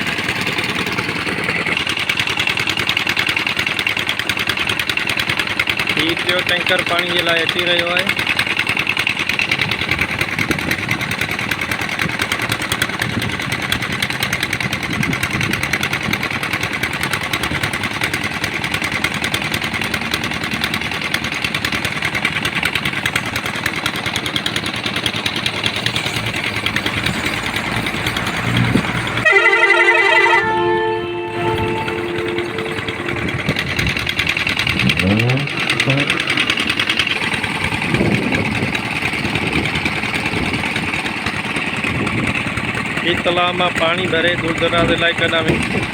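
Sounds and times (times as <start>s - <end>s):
tractor diesel engine running: 0.0s - 45.9s
musical horn playing tune: 29.2s - 34.1s.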